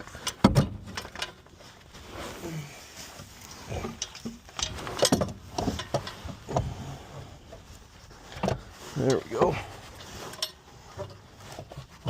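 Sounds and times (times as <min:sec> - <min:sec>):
metal clunks and knocks: 0:00.2 - 0:01.4, 0:03.7 - 0:06.8.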